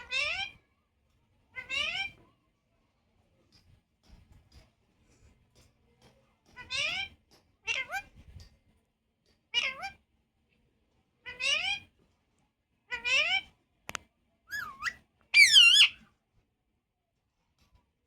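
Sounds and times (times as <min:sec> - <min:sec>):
parrot meow-like cries: 0:00.0 - 0:00.6, 0:01.6 - 0:02.2, 0:07.7 - 0:08.1, 0:09.6 - 0:10.0, 0:11.3 - 0:11.8, 0:12.9 - 0:13.5, 0:14.5 - 0:16.0.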